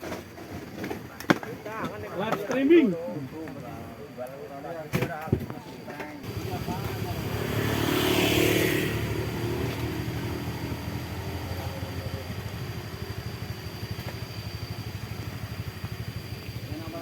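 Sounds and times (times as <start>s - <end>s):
vehicle engine throbbing: 6.2s - 17.0s
rushing swell: 6.3s - 13.8s.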